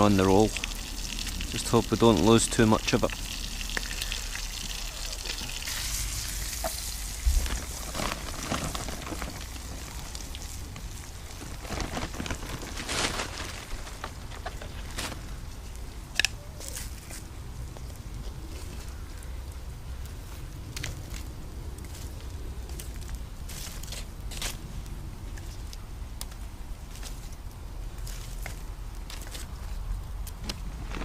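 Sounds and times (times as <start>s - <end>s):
burger sizzling on coals: 0.0s - 11.6s
wood crackling and popping: 0.0s - 31.0s.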